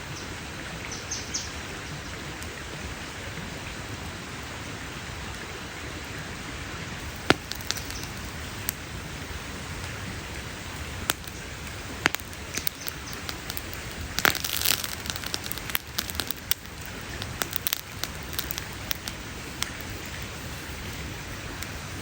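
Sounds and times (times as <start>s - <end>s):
campfire crackling: 5.3s - 22.0s
sharp pops of fire: 7.0s - 22.0s.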